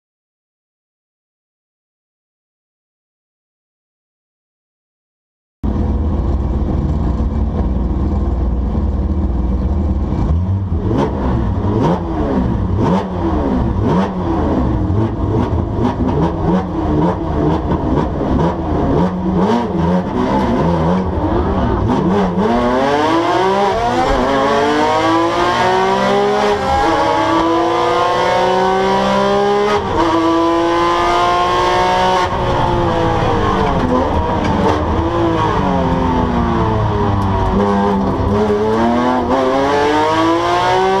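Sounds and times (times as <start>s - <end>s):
car engine revving: 5.6s - 41.0s.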